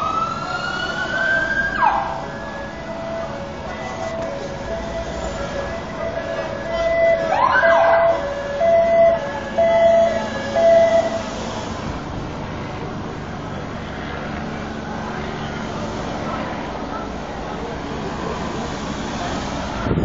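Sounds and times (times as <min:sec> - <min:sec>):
two-tone emergency siren: 0:00.0 - 0:11.4
street traffic noise: 0:00.0 - 0:20.0.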